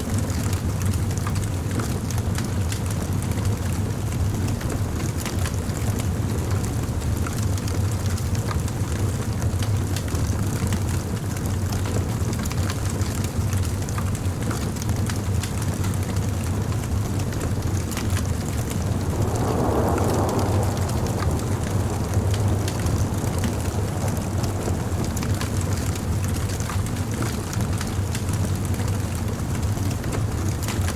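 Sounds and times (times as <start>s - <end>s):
low rumble of flames: 0.0s - 30.9s
crackles and pops of burning wood: 0.4s - 30.9s.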